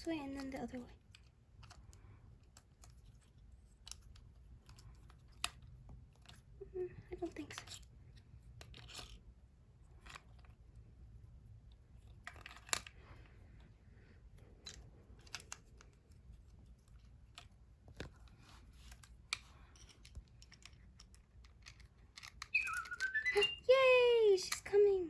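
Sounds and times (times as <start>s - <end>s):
batteries clicking into plastic toy: 18.8s - 23.6s.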